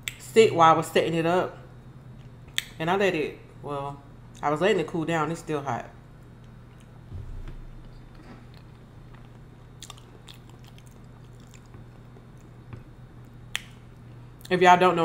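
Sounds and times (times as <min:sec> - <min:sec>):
faint low hum: 0:00.0 - 0:15.0
chewing with mouth closed: 0:08.2 - 0:13.8.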